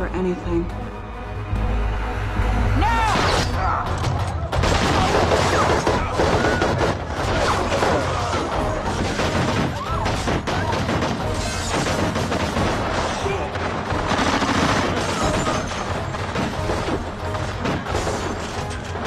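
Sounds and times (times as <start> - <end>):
dramatic background music: 0.0 - 19.0
rapid gunfire: 4.5 - 19.0.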